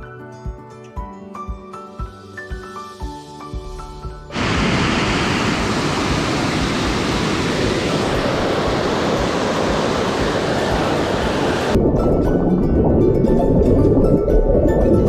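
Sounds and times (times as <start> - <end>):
stream water rushing: 4.3 - 14.3.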